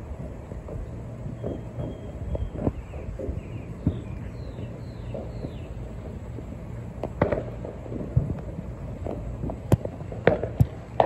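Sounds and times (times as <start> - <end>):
distant fireworks popping: 0.0 - 11.0.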